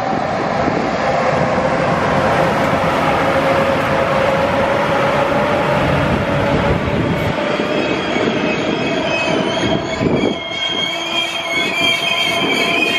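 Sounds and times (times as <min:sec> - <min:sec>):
locomotive whine: 0:00.0 - 0:12.9
train wheels rumbling on rails: 0:00.0 - 0:12.9.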